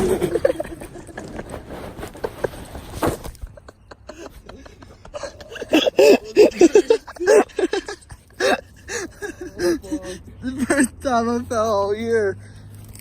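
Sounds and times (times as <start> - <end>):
person laughing hard: 0.0 - 2.8, 3.4 - 11.0
small clicks: 12.7 - 13.0.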